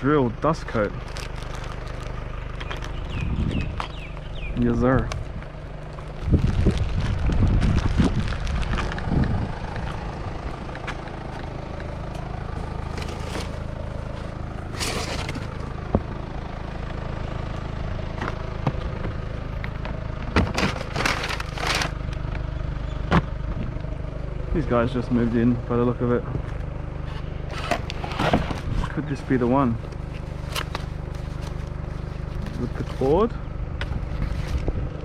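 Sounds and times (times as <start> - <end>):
steady low rumble: 0.0 - 35.0
rummaging scraping and knocks: 12.8 - 15.6, 20.3 - 22.0, 27.1 - 33.2.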